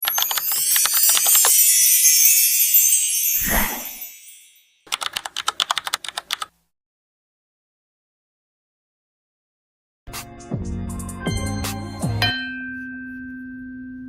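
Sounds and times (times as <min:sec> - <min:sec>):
typing-like clicks: 0:00.0 - 0:01.5, 0:04.9 - 0:06.5
high sparkling shimmer: 0:00.0 - 0:04.9
whoosh sweep: 0:03.4 - 0:04.2.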